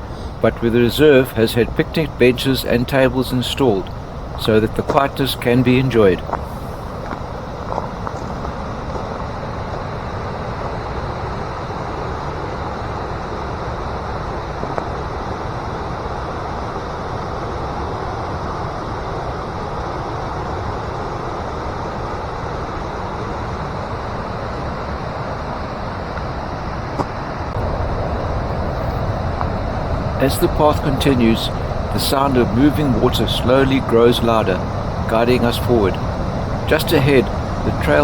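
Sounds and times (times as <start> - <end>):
stream water rushing: 0.0 - 8.6, 30.2 - 38.0.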